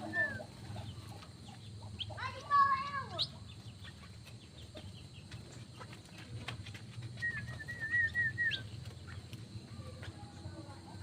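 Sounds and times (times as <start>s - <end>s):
bird whistled call: 0.0s - 0.5s, 7.2s - 8.8s
faint bird chirps: 0.0s - 11.0s.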